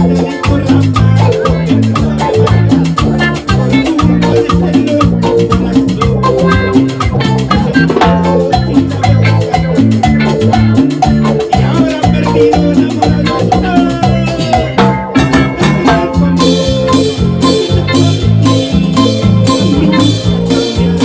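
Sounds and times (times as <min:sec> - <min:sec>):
instrumental latin dance music: 0:00.0 - 0:21.0.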